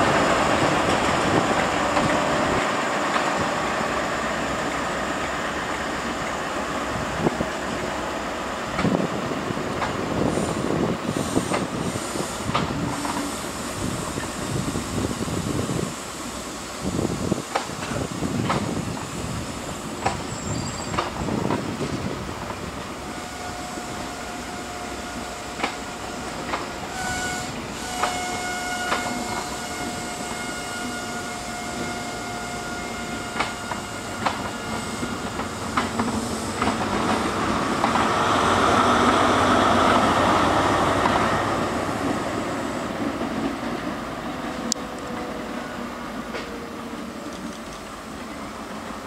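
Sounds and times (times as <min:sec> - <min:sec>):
train wheels clicking over rail joints: 0:00.0 - 0:03.5, 0:08.7 - 0:09.1, 0:09.7 - 0:15.1, 0:17.3 - 0:23.0, 0:25.1 - 0:31.9, 0:33.0 - 0:45.3, 0:46.1 - 0:49.0
wheel squeal: 0:20.2 - 0:21.1.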